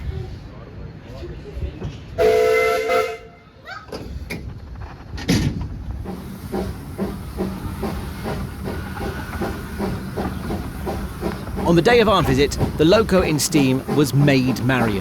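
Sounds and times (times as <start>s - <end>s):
steam locomotive whistle: 2.2s - 3.4s
steam exhaust chuffs: 5.7s - 15.0s.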